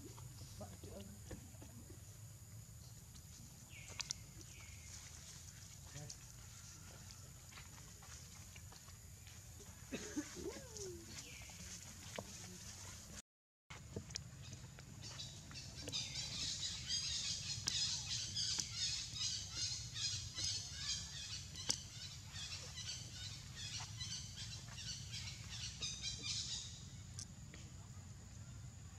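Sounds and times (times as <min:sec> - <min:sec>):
birds chirping rapidly: 0:14.4 - 0:27.2.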